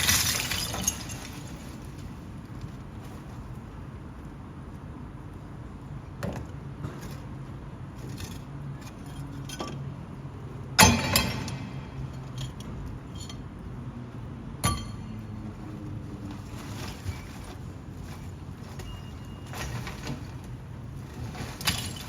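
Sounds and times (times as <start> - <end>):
low engine hum: 8.7 - 21.5
metallic clanks: 10.8 - 13.4, 14.6 - 15.4.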